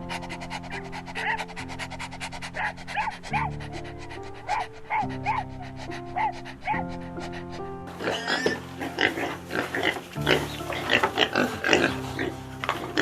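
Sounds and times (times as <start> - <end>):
dog whining yelps: 0.8 - 1.6, 2.5 - 3.6, 4.4 - 6.9.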